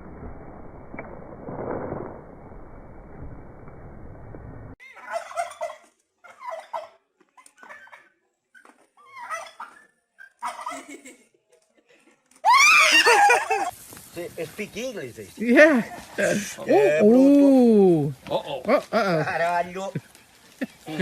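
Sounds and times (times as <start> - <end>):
turkeys gobbling: 4.8 - 7.0, 9.1 - 9.8, 10.4 - 10.8
shrill rising and falling cry: 12.4 - 13.7.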